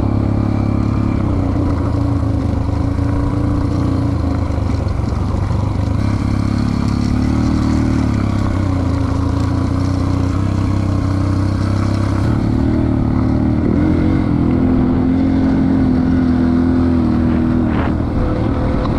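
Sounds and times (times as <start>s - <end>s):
dirt bike engine running: 0.0s - 18.9s.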